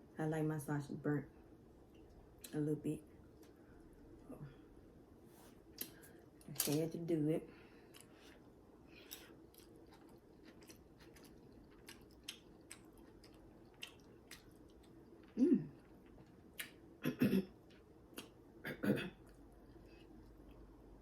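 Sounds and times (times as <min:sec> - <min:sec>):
person chewing food: 0:07.8 - 0:18.4, 0:19.2 - 0:21.0
person humming mm: 0:15.4 - 0:15.8.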